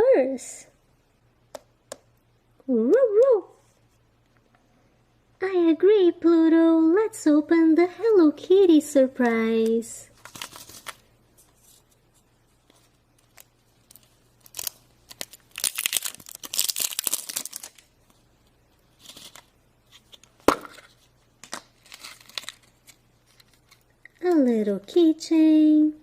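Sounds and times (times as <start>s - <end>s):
wrapper tearing and crinkling: 10.2s - 11.1s, 13.2s - 18.2s, 18.9s - 20.3s, 21.5s - 23.9s.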